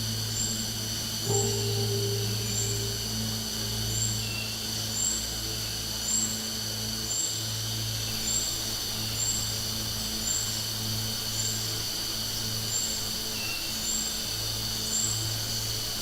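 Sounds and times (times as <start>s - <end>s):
low hum: 0.0s - 5.8s
cicadas buzzing: 0.0s - 16.0s.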